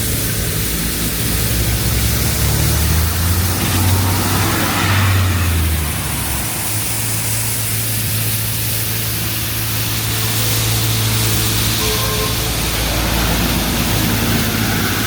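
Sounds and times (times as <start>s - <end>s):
low hum of street traffic: 0.0s - 15.0s
wind rushing over microphone: 2.3s - 8.5s.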